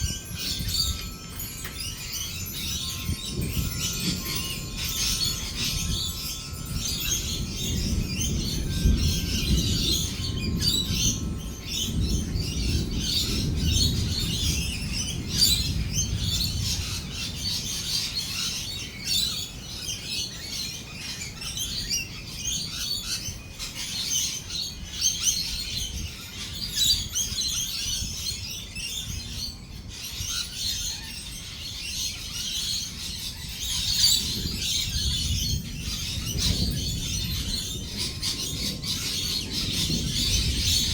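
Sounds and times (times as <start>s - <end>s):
rolling thunder rumble: 2.7s - 17.7s, 34.2s - 40.9s
parrots chattering and screeching: 30.0s - 40.9s.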